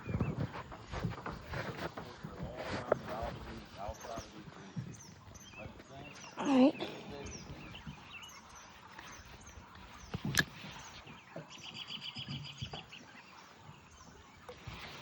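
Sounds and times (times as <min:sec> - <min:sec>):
birds chirping: 0:00.0 - 0:15.0
bird trill: 0:04.9 - 0:13.3.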